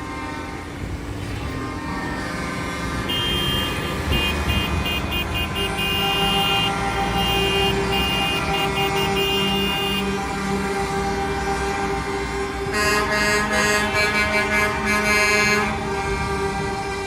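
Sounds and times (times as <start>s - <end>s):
truck engines running: 0.0s - 17.0s
low truck horn tone: 0.4s - 17.0s
high truck horn blasts: 1.8s - 17.0s.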